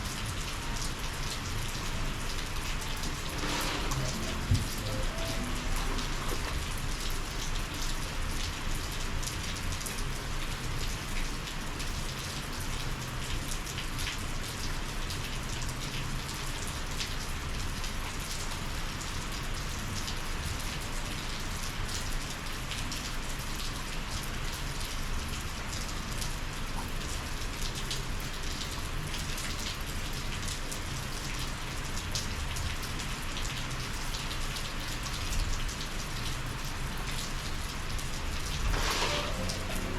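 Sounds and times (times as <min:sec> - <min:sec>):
raindrops ticking close by: 0:00.0 - 0:39.9
steady rain: 0:00.0 - 0:39.9.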